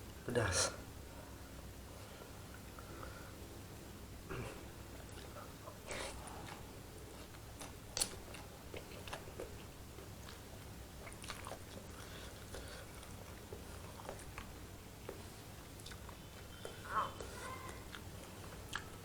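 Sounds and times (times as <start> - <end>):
person chewing noodles: 4.9 - 19.0.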